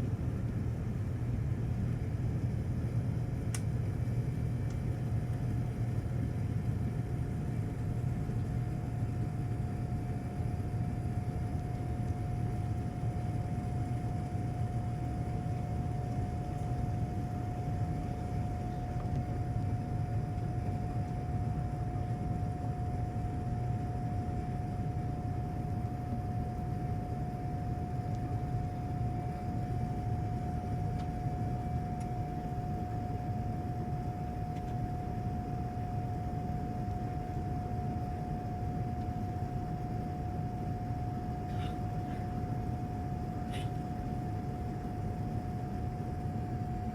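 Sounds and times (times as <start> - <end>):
aircraft cabin engine rumble: 0.0 - 46.9
high hum: 25.8 - 46.9.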